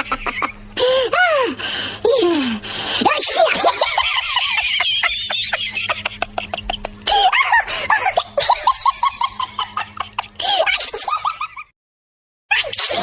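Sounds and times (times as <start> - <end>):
high-pitched laughter: 0.0 - 0.6, 3.0 - 11.7
breathy staccato giggles: 5.9 - 7.9.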